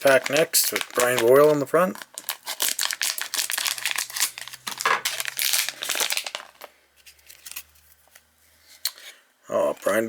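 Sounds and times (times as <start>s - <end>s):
wrapper crinkling and tearing: 0.0s - 7.7s.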